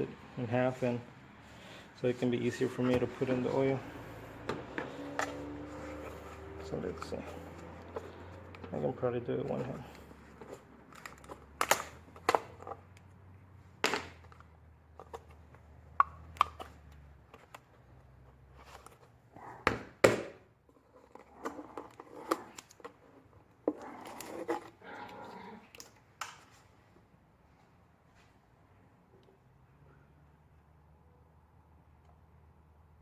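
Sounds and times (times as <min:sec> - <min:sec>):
rustling handling noise: 0:00.7 - 0:13.0.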